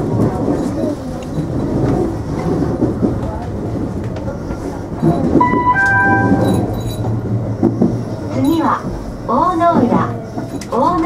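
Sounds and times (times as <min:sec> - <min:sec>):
electric train hum and rumble: 0:00.0 - 0:11.0
short steady tones: 0:05.4 - 0:07.0.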